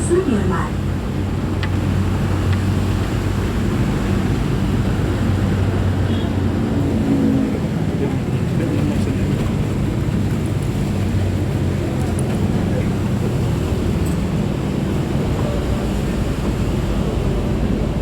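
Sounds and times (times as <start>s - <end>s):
train rumbling inside carriage: 0.0s - 18.0s.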